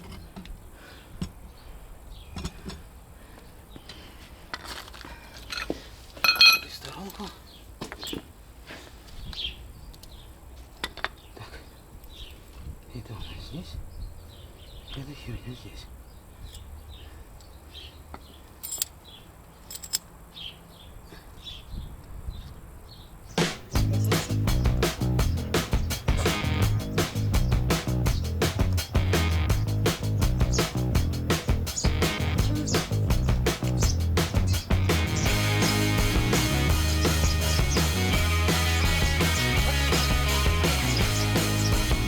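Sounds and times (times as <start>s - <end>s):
metal tools clicking and tapping: 5.4s - 7.2s, 18.6s - 19.0s, 19.7s - 20.1s
small bird chirping: 20.3s - 42.0s
low outdoor rumble: 23.7s - 42.0s.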